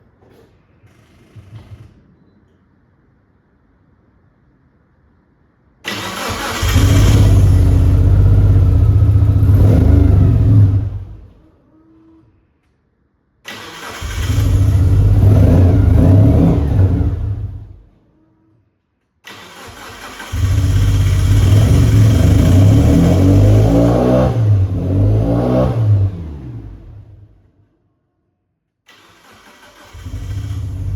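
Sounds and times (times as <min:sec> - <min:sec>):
car engine cranking and running rough: 0:05.9 - 0:11.2, 0:19.3 - 0:24.8, 0:29.2 - 0:30.9.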